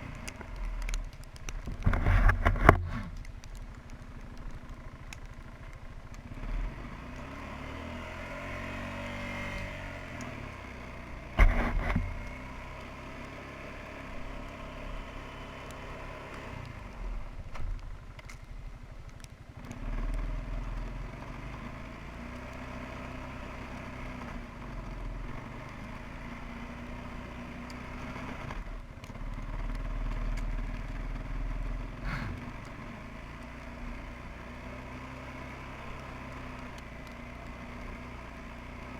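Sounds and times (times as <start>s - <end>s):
quad bike engine under load: 0.0s - 38.9s.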